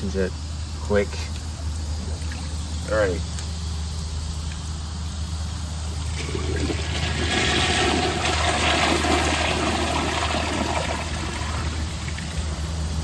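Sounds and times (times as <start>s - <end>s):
toilet flushing water rushing: 5.9s - 13.0s.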